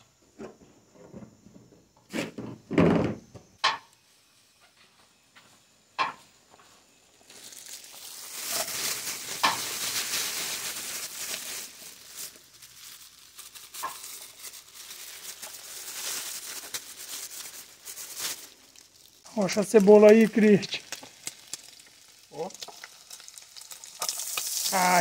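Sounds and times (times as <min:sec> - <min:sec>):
food sizzling in hot oil: 0:07.3 - 0:25.0.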